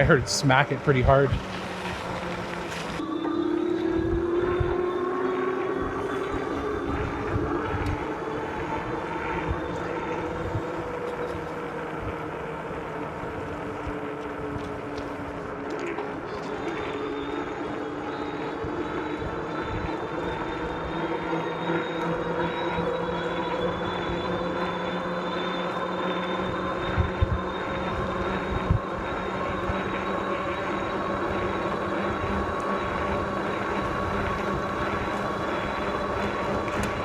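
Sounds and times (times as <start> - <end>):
tyre noise: 0.0 - 3.0
electric motor whine: 0.0 - 37.0
wind noise: 0.0 - 37.0.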